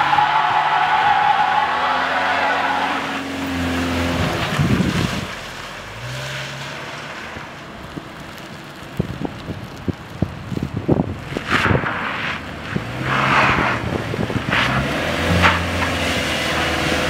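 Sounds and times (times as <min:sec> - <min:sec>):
tyres squealing: 0:00.0 - 0:04.9
car engine under throttle: 0:00.0 - 0:17.0
rush of noise: 0:10.5 - 0:15.4.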